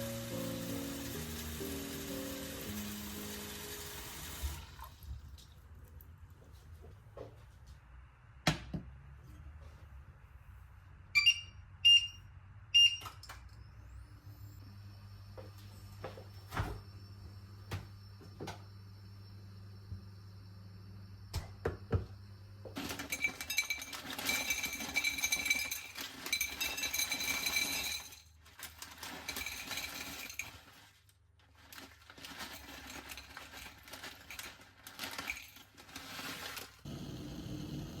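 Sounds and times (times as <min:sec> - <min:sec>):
dishes and utensils clattering: 0:22.8 - 0:30.8.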